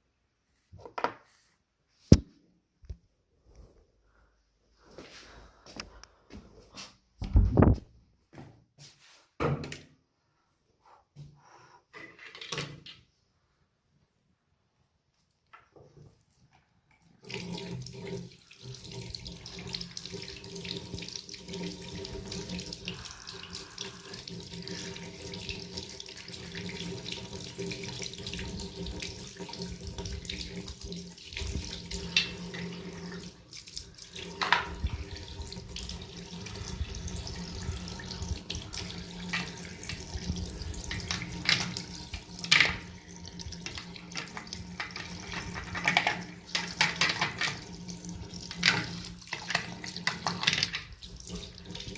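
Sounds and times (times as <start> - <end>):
tap water running into sink: 17.2 - 51.9.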